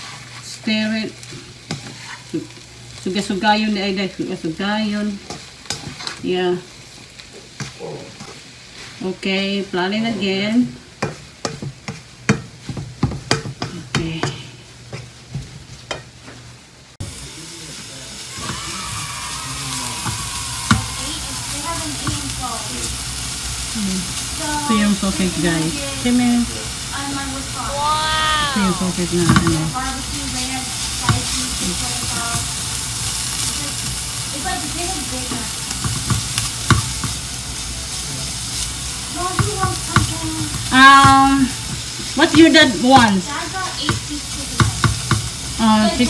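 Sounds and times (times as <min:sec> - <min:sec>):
meat sizzling in a frying pan: 0:00.0 - 0:46.0
utensil knocking against pan: 0:11.0 - 0:15.0, 0:20.0 - 0:20.9, 0:29.1 - 0:29.7, 0:35.3 - 0:37.2, 0:39.3 - 0:45.4.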